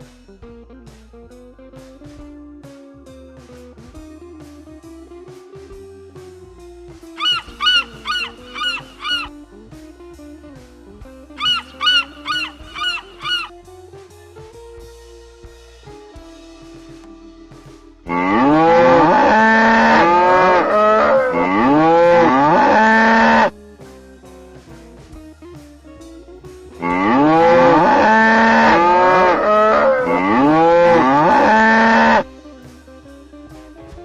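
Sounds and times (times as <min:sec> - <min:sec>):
guitar music: 0:00.0 - 0:34.0
cow mooing: 0:18.1 - 0:23.5, 0:26.8 - 0:32.3.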